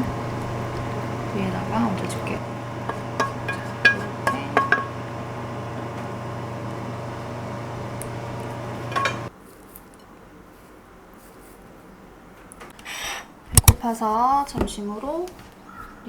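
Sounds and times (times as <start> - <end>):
steady hum: 0.0 - 9.3
utensils clinking against dish: 1.6 - 5.2, 8.8 - 9.3.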